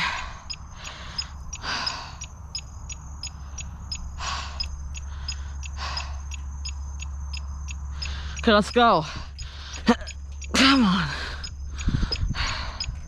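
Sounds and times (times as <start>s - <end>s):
person breathing hard: 0.0s - 2.3s, 3.3s - 6.4s, 7.9s - 8.4s, 9.0s - 9.9s, 10.7s - 13.0s
fast steady ticking: 0.0s - 13.0s
low steady rumble: 0.0s - 13.0s.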